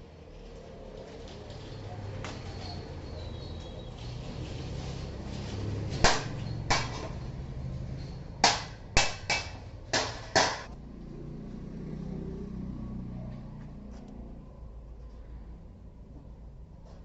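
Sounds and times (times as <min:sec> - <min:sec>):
hammer clanking on steel: 0:06.0 - 0:07.4, 0:08.0 - 0:10.7.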